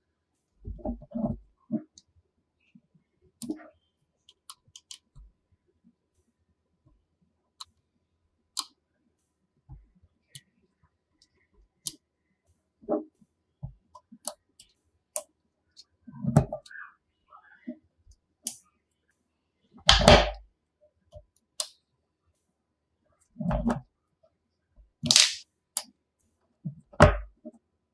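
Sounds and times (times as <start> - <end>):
magnetic pieces clicking together: 25.0 - 25.9.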